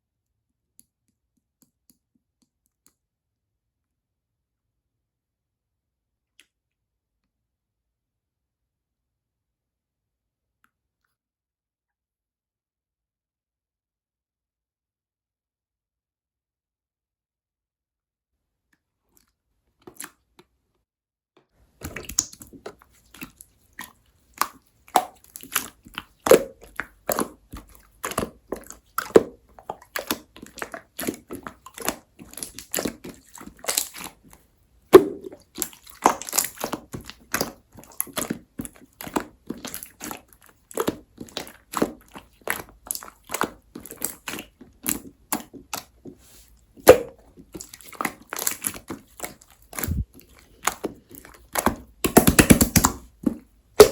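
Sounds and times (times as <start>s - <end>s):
slime squeezed sticky pops: 34.9s - 38.4s, 46.8s - 50.0s, 50.6s - 53.9s.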